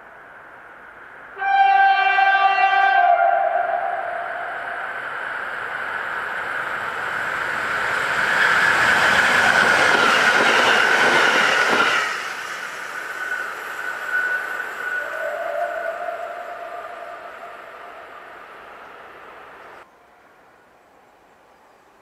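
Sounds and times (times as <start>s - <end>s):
electric train passing at speed: 0.0s - 22.0s
train wheels running over rails: 4.9s - 15.0s.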